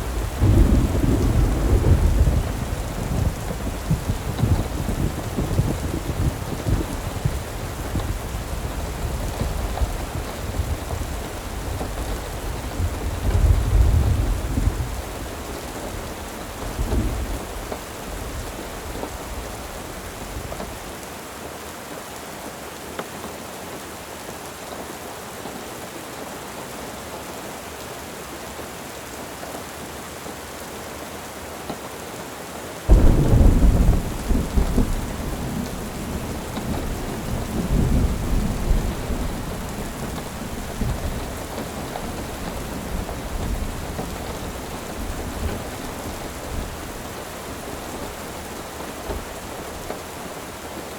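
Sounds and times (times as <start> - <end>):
thunder rolling: 0.0 - 20.6, 32.9 - 49.9
rain falling: 0.0 - 50.9
loud thunder clap: 0.1 - 8.2, 32.9 - 48.2.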